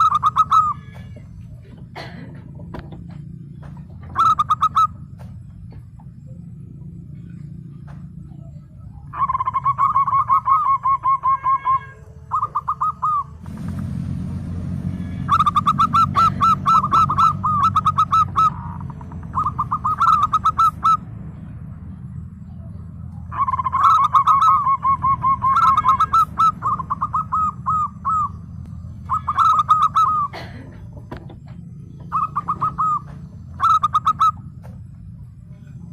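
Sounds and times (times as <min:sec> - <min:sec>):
dove cooing: 0:00.0 - 0:13.5, 0:14.9 - 0:35.9
low hum: 0:00.0 - 0:35.9.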